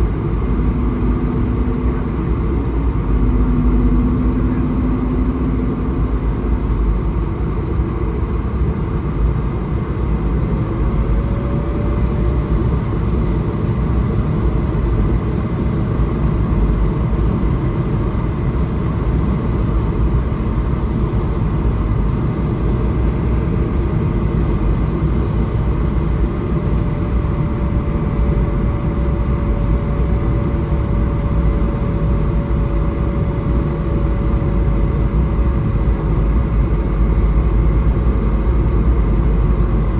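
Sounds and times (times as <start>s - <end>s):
faint engine tone: 0.0s - 8.9s
airflow rushing in cabin: 0.0s - 39.9s
jet engines rumbling: 0.0s - 39.9s.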